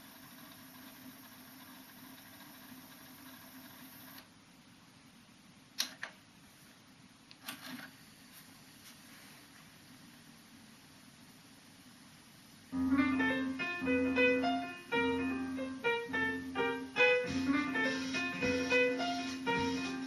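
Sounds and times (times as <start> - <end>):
cassette deck transport running: 0.0 - 4.3.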